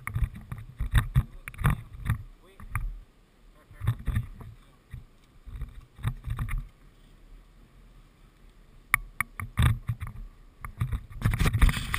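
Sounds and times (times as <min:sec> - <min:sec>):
knocks and clattering thumps: 0:00.0 - 0:02.9, 0:03.8 - 0:06.7
sharp clicks and thuds: 0:00.0 - 0:03.0, 0:03.7 - 0:06.8, 0:08.9 - 0:11.9.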